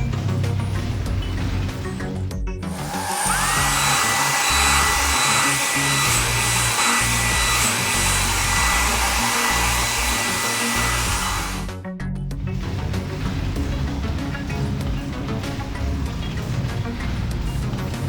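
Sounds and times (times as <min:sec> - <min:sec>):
background music: 0:00.0 - 0:18.0
blower rushing hiss: 0:00.4 - 0:11.7
motor whine: 0:02.7 - 0:11.7.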